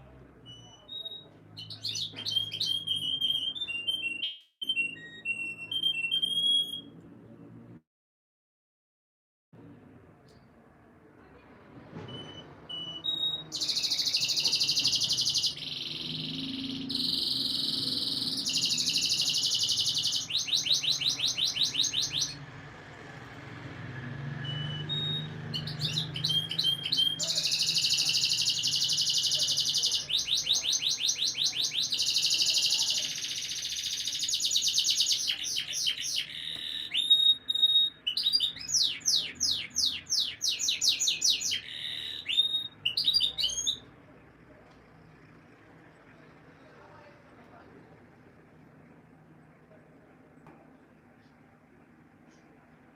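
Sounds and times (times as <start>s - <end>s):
canary singing trills: 0.5s - 6.9s, 12.7s - 22.4s, 24.4s - 44.0s.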